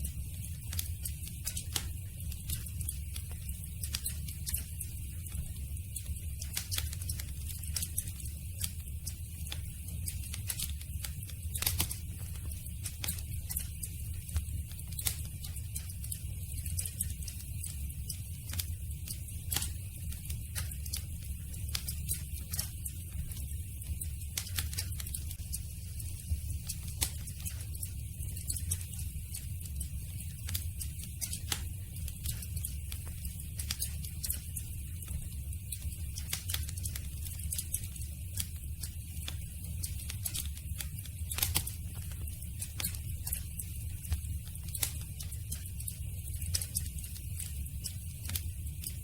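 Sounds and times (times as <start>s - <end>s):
campfire wood crackling: 0.1s - 45.4s.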